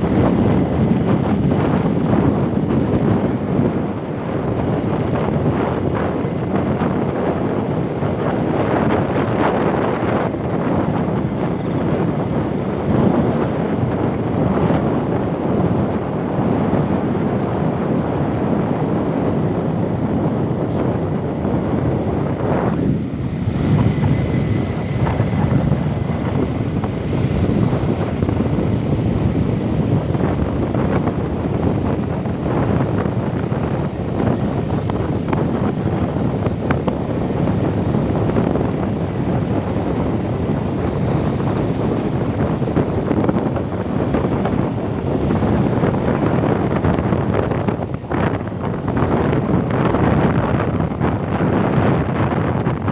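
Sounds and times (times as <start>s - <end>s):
wind rumbling on microphone: 0.0s - 52.9s.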